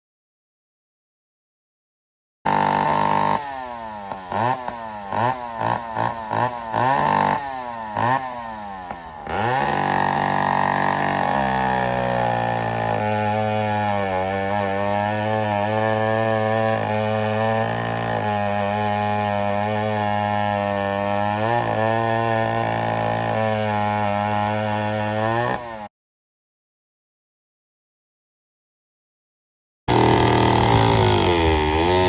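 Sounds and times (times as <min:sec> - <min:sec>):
chainsaw revving: 0:02.5 - 0:25.9, 0:29.9 - 0:32.0.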